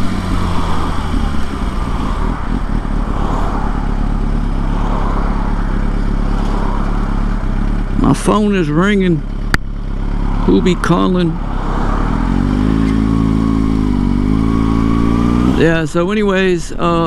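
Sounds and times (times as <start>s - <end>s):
wind rush on microphone: 0.0s - 7.2s
motorcycle engine running: 0.0s - 17.0s.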